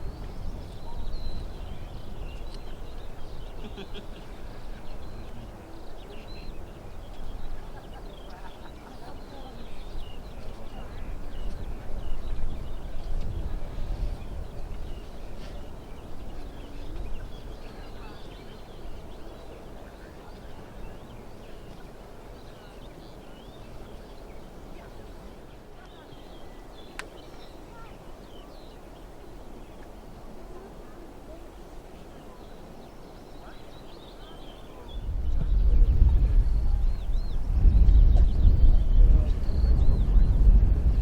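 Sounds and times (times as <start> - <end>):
small birds chirping: 0.0 - 41.0
steady low rumble: 34.9 - 41.0.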